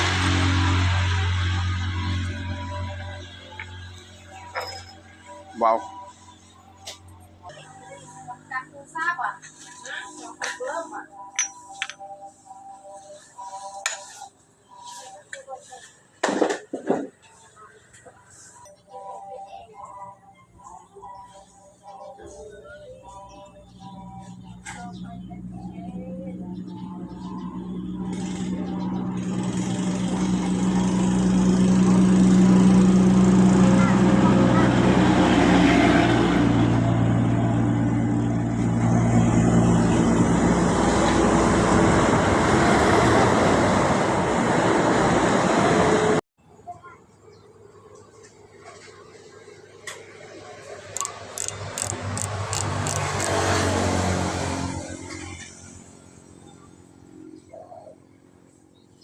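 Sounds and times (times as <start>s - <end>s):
small motorcycle engine running: 0.0s - 9.9s, 23.7s - 46.2s, 48.0s - 59.0s
sharp clicks: 50.9s - 53.5s.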